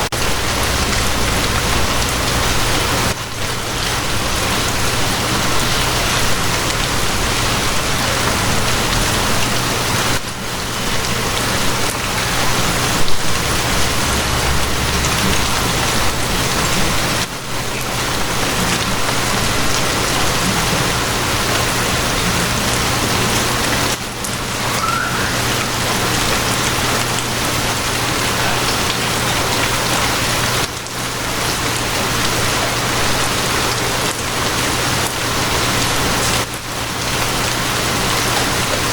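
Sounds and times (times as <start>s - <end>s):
steady rain falling: 0.0s - 38.9s
low rumble: 0.2s - 3.2s.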